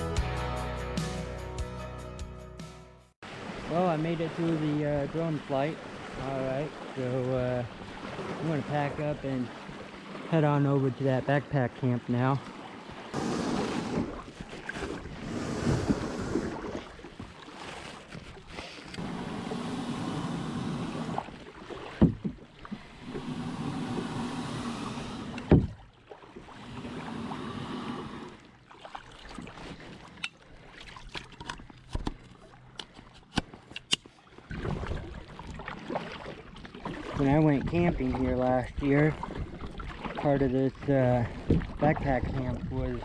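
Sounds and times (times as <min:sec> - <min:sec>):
paddle swishing water: 0:03.2 - 0:11.0, 0:12.1 - 0:43.0
knocks against kayak: 0:22.0 - 0:22.4.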